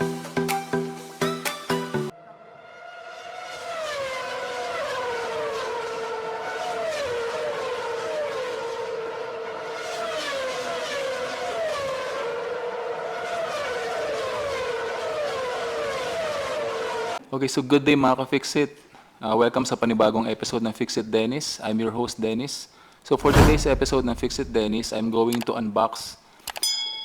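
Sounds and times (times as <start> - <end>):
car engines whining past: 2.4 - 17.2.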